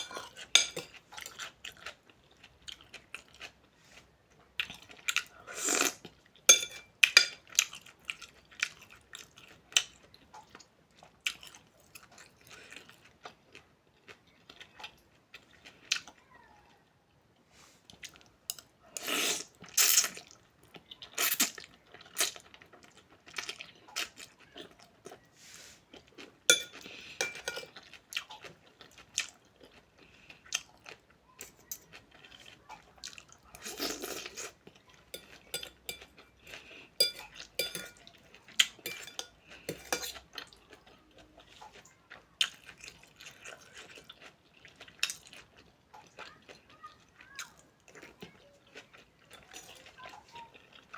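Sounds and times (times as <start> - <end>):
spoon clinking on bowl: 0.0 - 0.9, 6.5 - 7.4, 26.5 - 27.7, 35.1 - 36.1, 37.0 - 38.0, 38.8 - 40.2
person chewing and crunching food: 0.0 - 16.2, 17.8 - 50.9.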